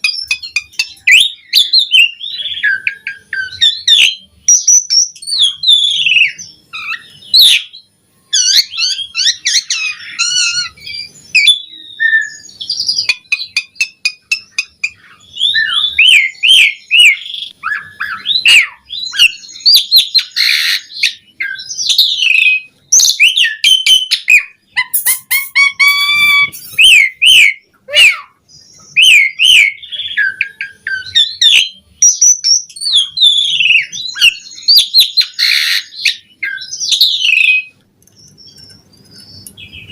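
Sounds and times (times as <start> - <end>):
starling singing varied song: 23.5 - 32.0.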